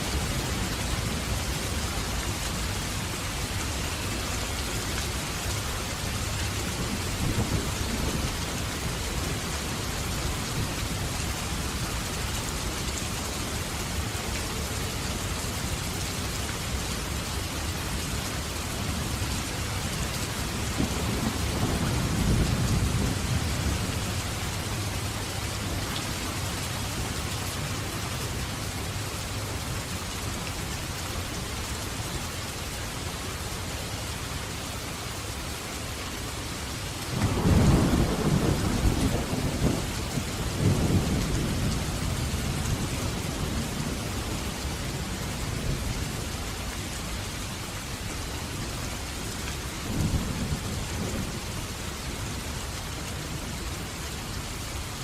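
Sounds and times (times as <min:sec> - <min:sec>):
heavy rain falling: 0:00.0 - 0:55.0
low thunder rumble: 0:20.5 - 0:24.6, 0:37.1 - 0:44.5
rolling thunderclap: 0:37.1 - 0:44.0.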